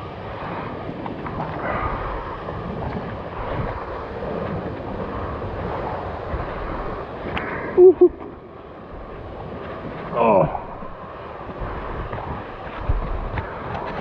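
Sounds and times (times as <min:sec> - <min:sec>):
waterfall roaring: 0:07.5 - 0:09.1
person giving two-note call: 0:07.8 - 0:08.2.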